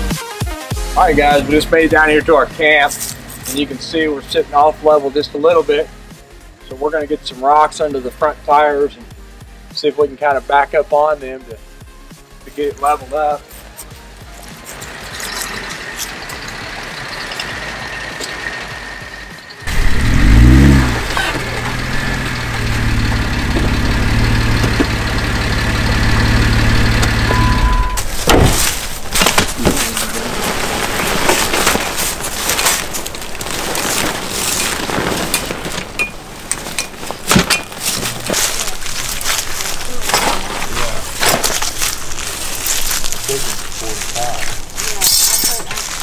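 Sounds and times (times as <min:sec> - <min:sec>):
car engine starting and idling: 0:01.0 - 0:06.1, 0:14.0 - 0:44.9
short beep: 0:27.1 - 0:28.1.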